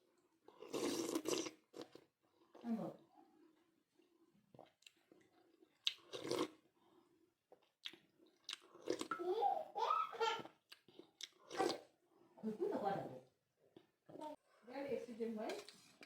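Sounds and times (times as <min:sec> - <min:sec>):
chewing and mouth noises: 0:00.5 - 0:02.6, 0:04.5 - 0:06.6, 0:07.5 - 0:09.2, 0:10.7 - 0:11.8.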